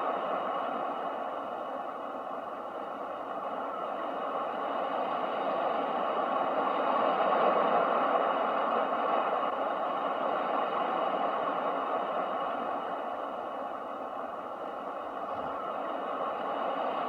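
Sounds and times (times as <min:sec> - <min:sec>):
ocean waves washing: 0:00.0 - 0:17.0.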